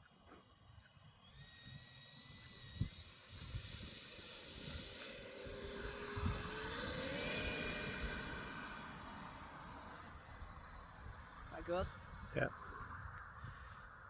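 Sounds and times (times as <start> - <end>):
jet engine whine: 0.0 - 14.0.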